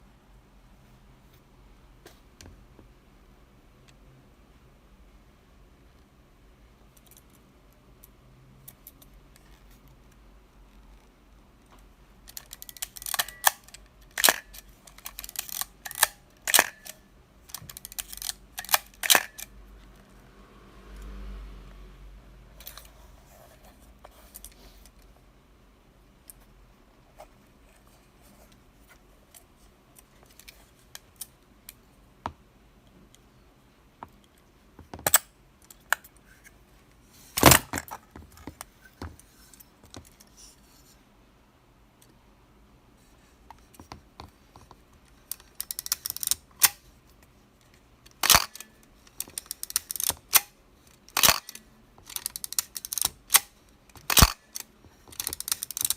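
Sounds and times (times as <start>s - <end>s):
camera mechanism clicks: 12.3s - 19.5s, 48.1s - 50.5s, 51.1s - 55.9s
ratcheting clicks: 51.1s - 55.9s.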